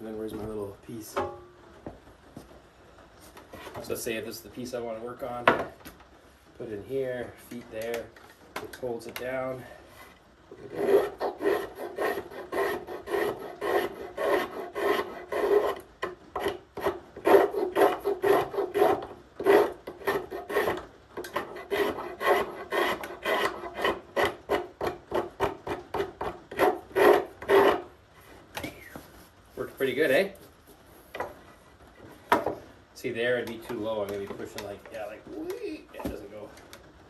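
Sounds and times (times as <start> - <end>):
drawknife shaving wood: 10.0 - 27.9.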